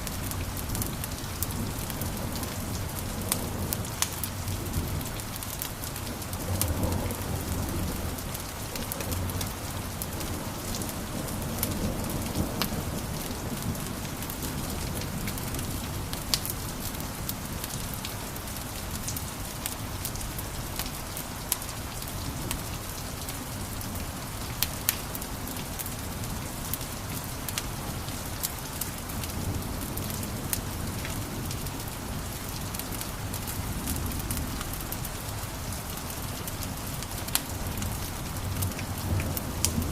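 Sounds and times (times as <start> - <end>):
wood fire crackling: 0.0 - 22.1, 24.4 - 39.9.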